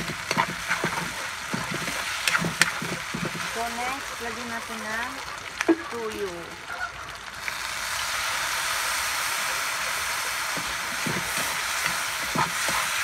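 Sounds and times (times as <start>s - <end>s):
metal spatula scraping wok: 0.0s - 4.6s, 9.8s - 13.0s
food sizzling in a wok: 0.0s - 13.0s.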